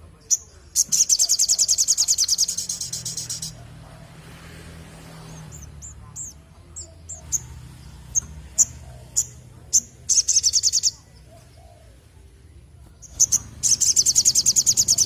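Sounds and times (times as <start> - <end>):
bird high chirps and trill: 0.2 - 3.6, 5.2 - 11.6, 13.0 - 15.0.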